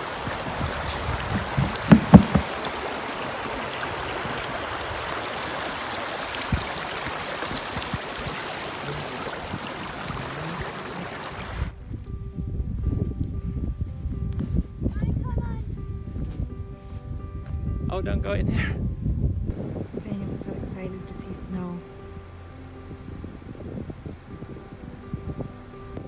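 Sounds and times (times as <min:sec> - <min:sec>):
flowing stream water: 0:00.0 - 0:11.7
low thumps: 0:00.8 - 0:03.0.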